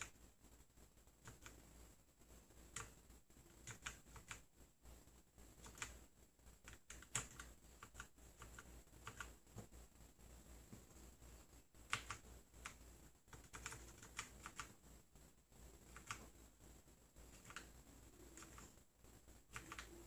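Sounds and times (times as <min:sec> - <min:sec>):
keyboard keystroke clicks: 0:11.9 - 0:12.8.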